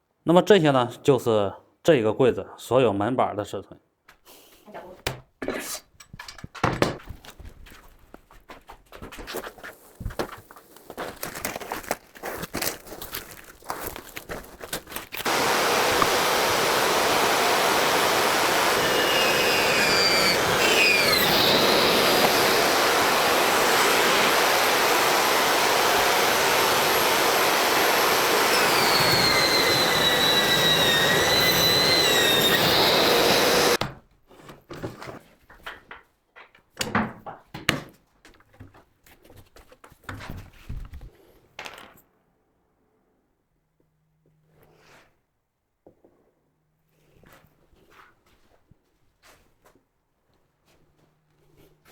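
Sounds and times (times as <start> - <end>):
electric saw cutting wood: 15.2 - 33.8.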